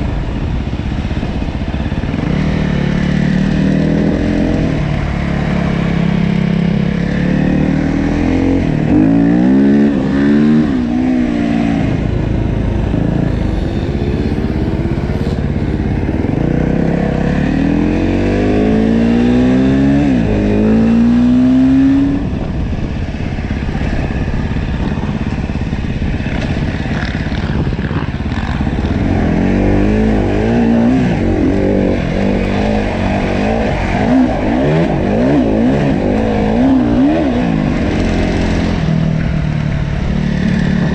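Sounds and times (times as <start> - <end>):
wind and trail noise: 0.0 - 40.9
dirt bike engine revving: 24.1 - 39.1.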